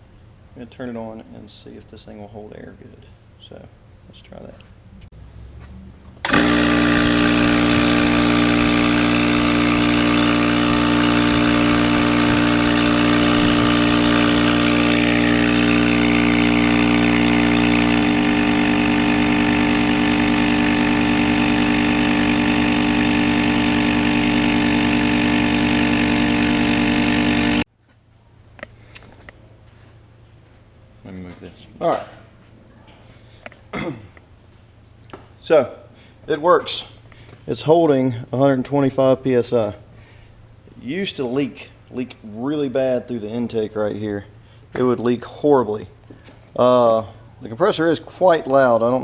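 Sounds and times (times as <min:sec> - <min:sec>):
air compressor motor droning: 0:05.4 - 0:27.7.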